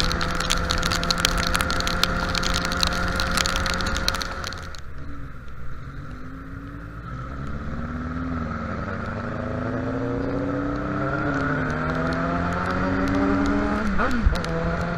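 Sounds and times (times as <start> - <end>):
road and wind rumble: 0.0 - 14.9
motorcycle engine accelerating: 5.0 - 14.9.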